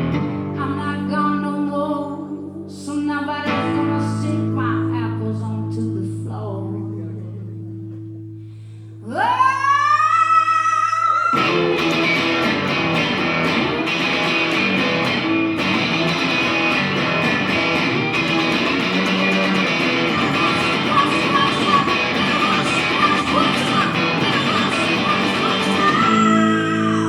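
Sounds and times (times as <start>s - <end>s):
guitar note sliding up: 11.4s - 27.0s
rock band playing loud: 11.4s - 27.0s.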